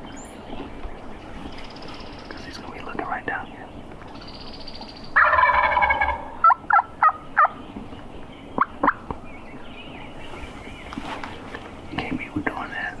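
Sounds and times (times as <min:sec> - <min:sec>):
turkey gobbling: 0:05.2 - 0:07.6
turkey yelping: 0:05.2 - 0:07.6.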